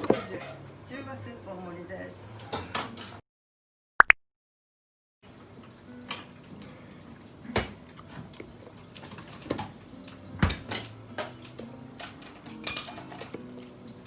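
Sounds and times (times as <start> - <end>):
dishes and cutlery clinking: 0.0 - 0.6, 7.5 - 14.0.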